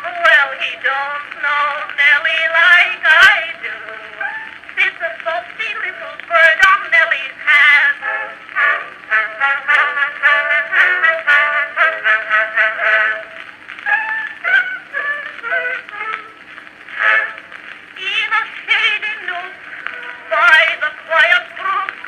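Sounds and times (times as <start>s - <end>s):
woman singing: 0.0s - 22.0s
band with brass: 7.4s - 18.0s.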